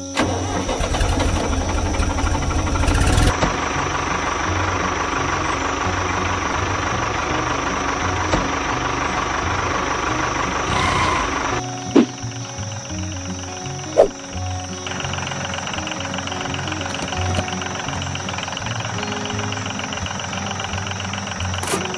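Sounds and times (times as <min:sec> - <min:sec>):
diesel tractor engine chugging: 0:00.0 - 0:21.9.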